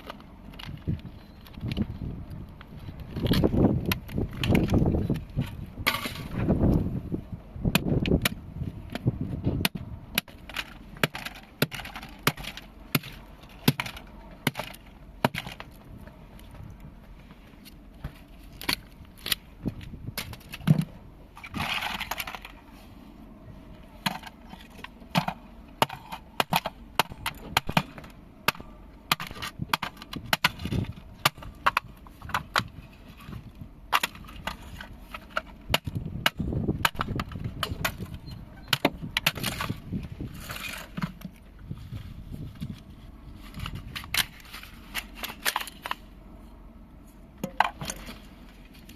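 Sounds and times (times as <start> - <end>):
plastic crunch: 18.4 - 22.7.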